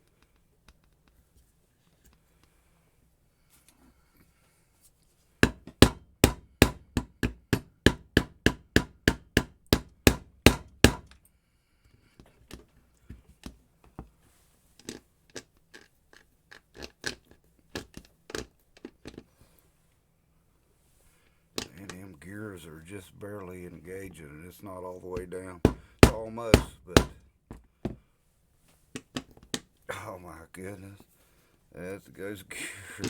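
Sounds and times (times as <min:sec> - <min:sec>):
hammer blows on metal: 0:05.4 - 0:11.1, 0:25.6 - 0:27.2
light irregular taps: 0:05.4 - 0:11.2, 0:25.1 - 0:28.0.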